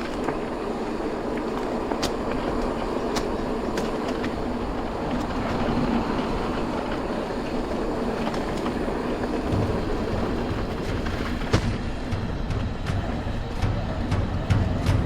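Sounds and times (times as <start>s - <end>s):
bike rattles and clicks: 0.0s - 15.0s
tyres and wind rumble: 0.0s - 15.0s.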